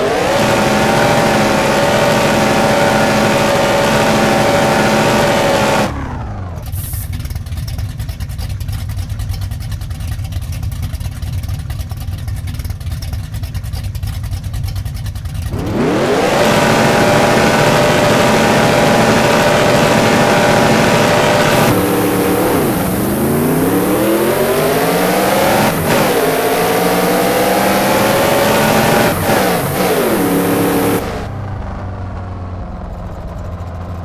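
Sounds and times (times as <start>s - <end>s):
race car engine revving: 0.0s - 7.0s, 15.4s - 34.0s.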